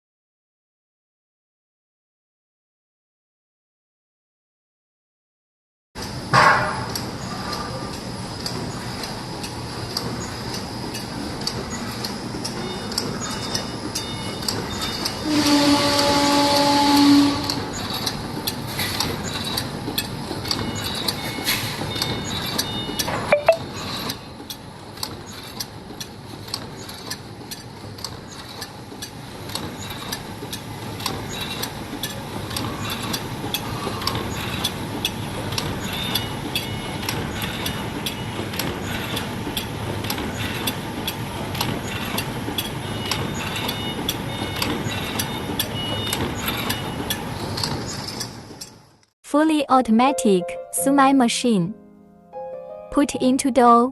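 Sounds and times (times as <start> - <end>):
loud pitched tone: 23.4 - 23.6.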